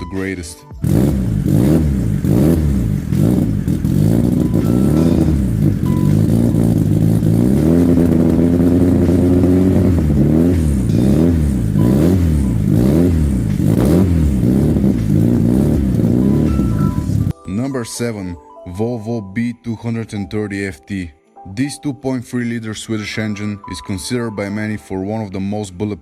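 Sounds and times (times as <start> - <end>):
car engine revving: 0.8 - 17.3.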